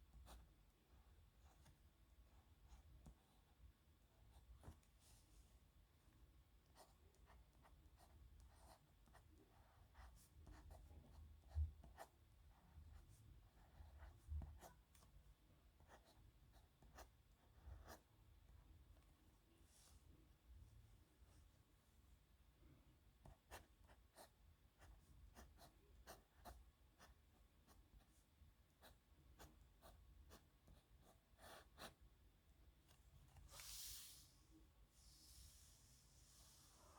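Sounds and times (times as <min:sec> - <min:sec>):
pen scratching on paper: 0:07.5 - 0:14.7, 0:15.8 - 0:18.1, 0:28.8 - 0:32.0.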